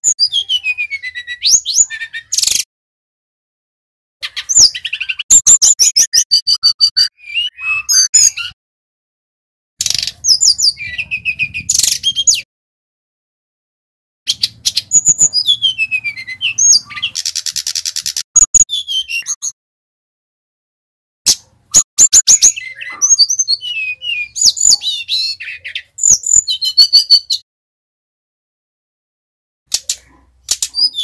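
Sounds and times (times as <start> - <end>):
bird singing whistles and trills: 0.0 - 2.7, 4.2 - 8.6, 9.8 - 12.5, 14.3 - 19.6, 21.7 - 27.4, 30.5 - 31.0.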